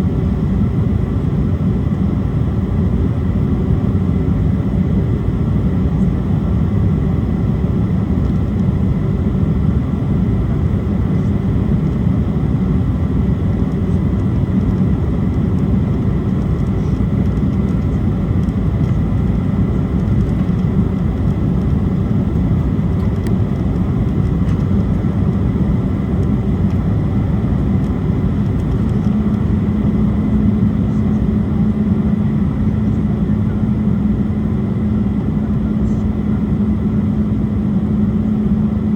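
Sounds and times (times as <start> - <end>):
jet engines roaring: 0.0 - 38.9
low hum: 0.0 - 38.9.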